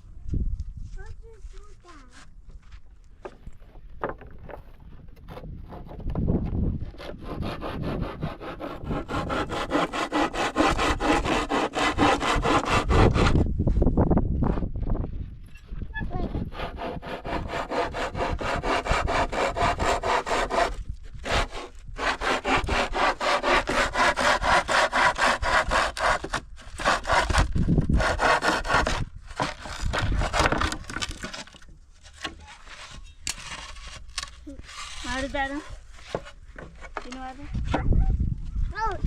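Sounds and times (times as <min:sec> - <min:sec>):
hand saw cutting wood: 0:06.8 - 0:13.5, 0:16.1 - 0:37.3.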